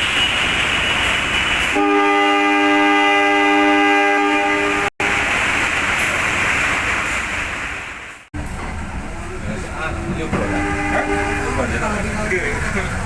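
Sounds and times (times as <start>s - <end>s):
locomotive horn blast: 0.0s - 5.3s, 9.9s - 12.2s
moving train rushing: 0.0s - 13.0s.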